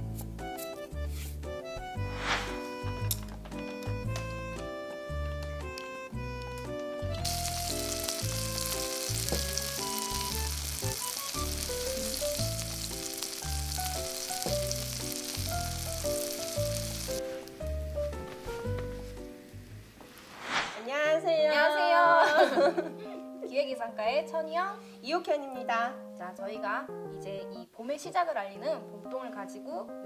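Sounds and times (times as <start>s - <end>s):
battered leaves sizzling in oil: 6.6s - 20.8s.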